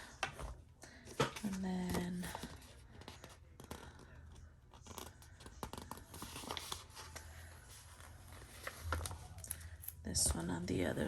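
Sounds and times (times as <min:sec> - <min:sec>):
paper rustling: 0:04.7 - 0:10.4.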